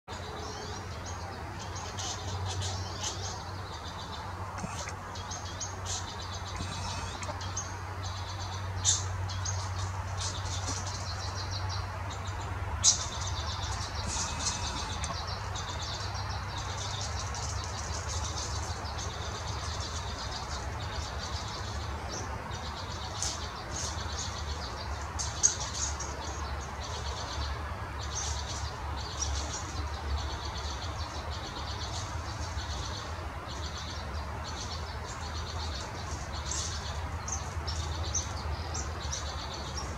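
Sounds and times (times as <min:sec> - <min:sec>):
low outdoor rumble: 0:00.1 - 0:27.7
small birds chirping: 0:00.1 - 0:39.9.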